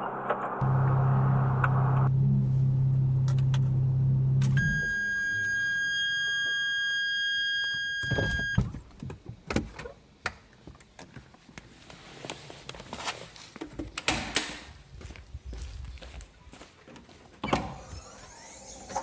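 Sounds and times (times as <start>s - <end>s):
steady electronic tone: 0.6s - 3.2s, 3.8s - 8.6s.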